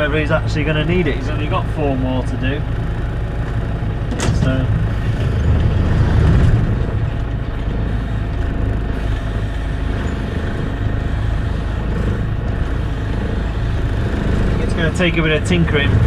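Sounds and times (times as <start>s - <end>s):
tractor engine rumbling: 0.0s - 16.0s.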